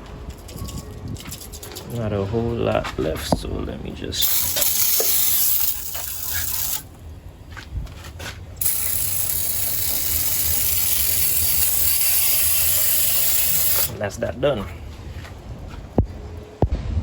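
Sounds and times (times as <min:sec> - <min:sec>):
aerosol can spraying: 0:04.2 - 0:06.9, 0:08.6 - 0:14.0.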